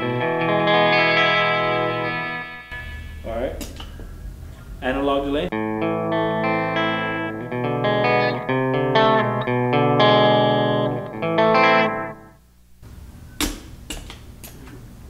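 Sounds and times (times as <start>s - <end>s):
clean electric guitar with delay: 0.0s - 4.7s, 5.5s - 12.4s.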